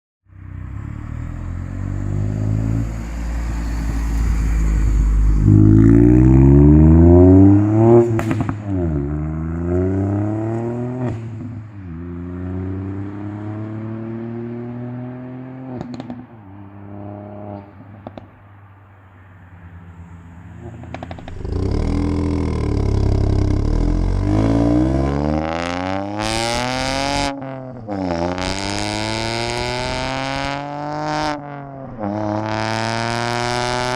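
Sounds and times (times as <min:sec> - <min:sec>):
car engine pulling through gears: 0:19.9 - 0:27.3
exhaust cracks: 0:20.6 - 0:25.8.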